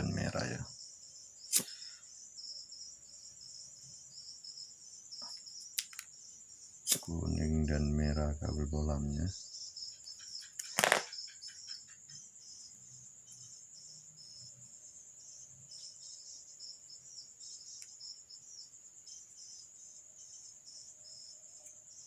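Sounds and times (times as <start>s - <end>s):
crickets chirping: 0.0s - 22.0s
sharp click: 1.5s - 1.8s, 6.9s - 7.1s, 10.5s - 11.2s.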